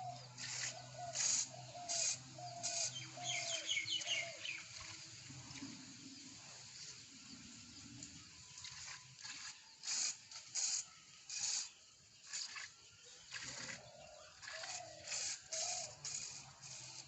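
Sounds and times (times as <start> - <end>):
bird arched call: 0.0 - 4.6, 13.3 - 16.1.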